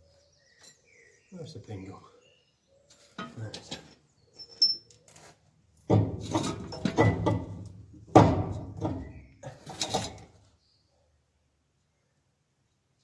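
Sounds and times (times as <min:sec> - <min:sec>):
heavy metal parts clunking: 0:05.8 - 0:10.4.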